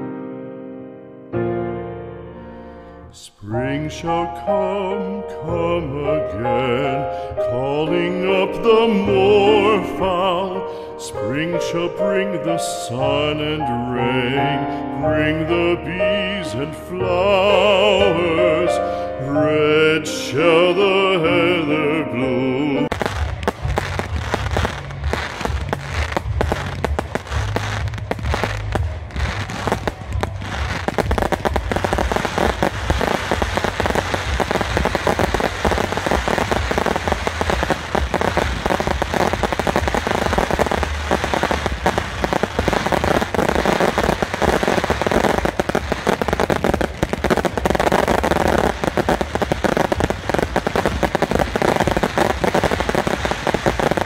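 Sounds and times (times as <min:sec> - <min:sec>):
fireworks crackling: 0:22.8 - 0:54.0
fireworks booming: 0:22.9 - 0:54.0.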